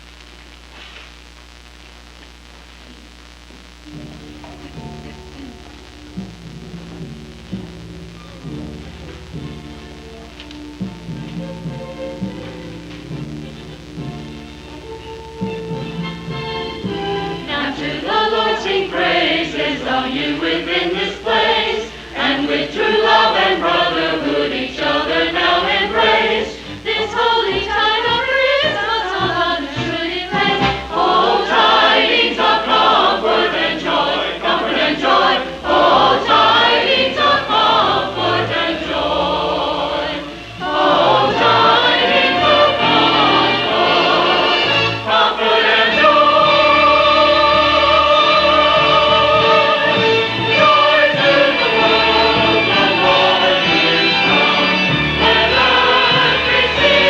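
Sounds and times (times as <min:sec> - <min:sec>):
musical accompaniment: 0:02.8 - 0:57.0
church choir singing: 0:16.8 - 0:57.0.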